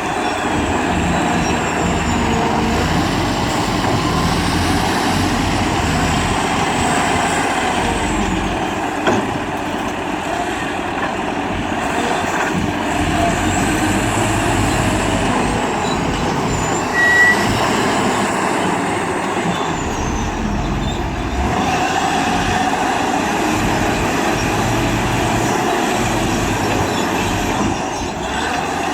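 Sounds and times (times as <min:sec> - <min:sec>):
diesel machinery running: 0:00.0 - 0:28.9
high squeak: 0:14.6 - 0:21.4.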